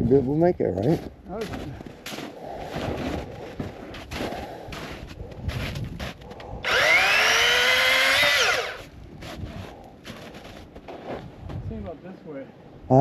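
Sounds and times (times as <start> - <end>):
electric chainsaw motor whining: 6.6 - 8.9.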